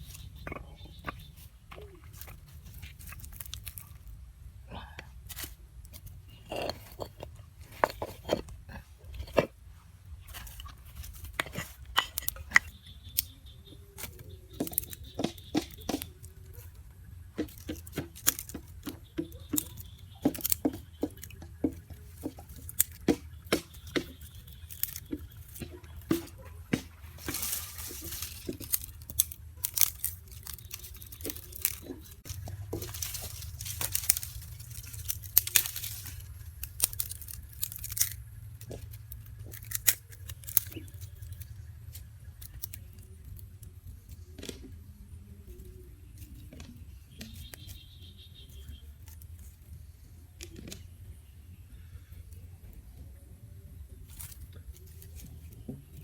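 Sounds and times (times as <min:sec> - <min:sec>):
low steady hum: 0:00.0 - 0:56.0
rustling and tearing: 0:01.2 - 0:04.1, 0:17.4 - 0:44.6
sharp clicks and knocks: 0:13.9 - 0:16.7, 0:17.3 - 0:42.8.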